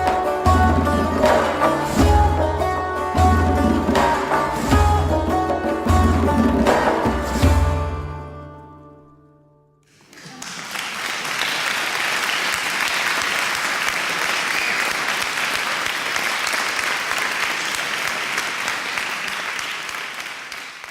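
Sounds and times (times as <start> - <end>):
audience applauding: 9.9 - 20.9.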